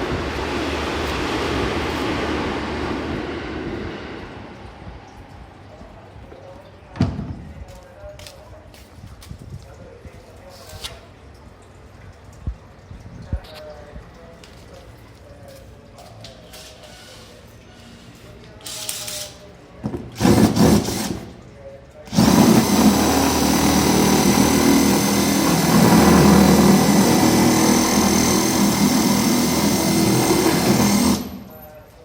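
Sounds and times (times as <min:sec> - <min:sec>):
electric drill running: 0:22.1 - 0:31.6.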